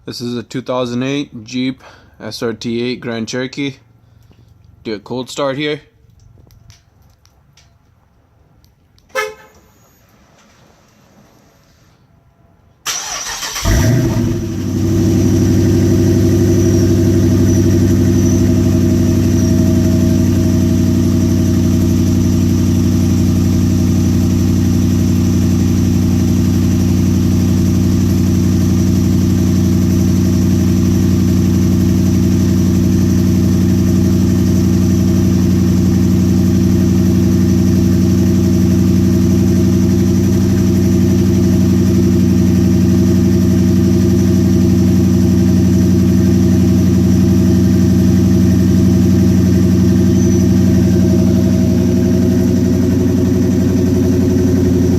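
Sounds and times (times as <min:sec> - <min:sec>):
car engine starting and idling: 0:12.7 - 0:54.9.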